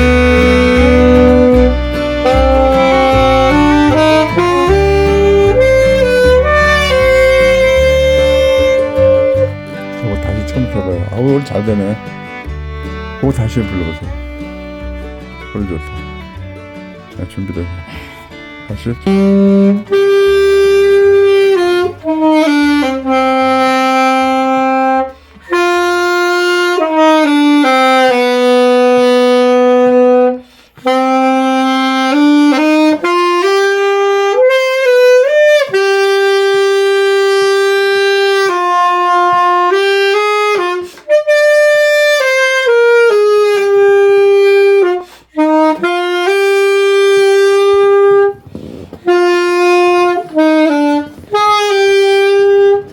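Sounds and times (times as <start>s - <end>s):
saxophone slow melody: 0.0s - 52.9s
player breathing: 17.7s - 18.6s, 25.1s - 25.4s, 30.4s - 30.8s, 48.4s - 49.0s.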